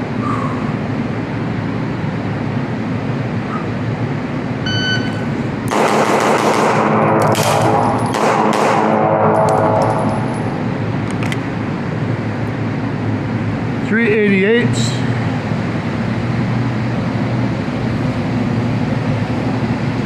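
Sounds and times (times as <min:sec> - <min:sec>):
shot timer beep: 0:04.6 - 0:05.2
pistol shots: 0:05.7 - 0:09.9.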